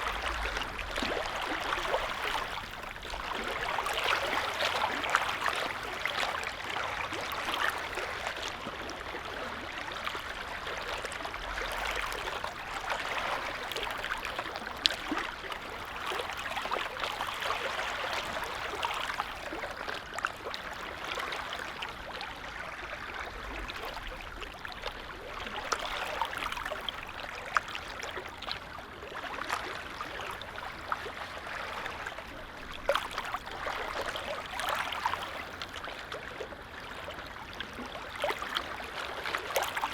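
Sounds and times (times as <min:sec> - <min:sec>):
small splashes and drips: 0:00.0 - 0:39.9
small waves lapping: 0:00.0 - 0:39.9.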